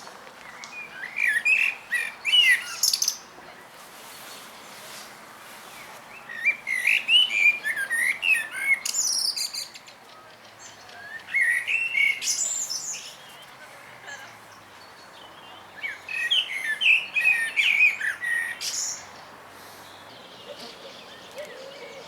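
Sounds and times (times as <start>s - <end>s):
songbird warbling: 5.7s - 22.0s.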